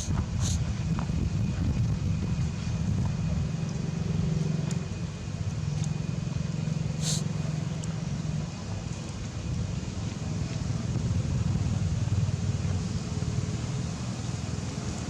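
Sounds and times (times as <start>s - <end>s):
short high hiss: 0.0s - 0.6s, 7.0s - 7.3s
vehicle engine humming: 0.0s - 15.0s.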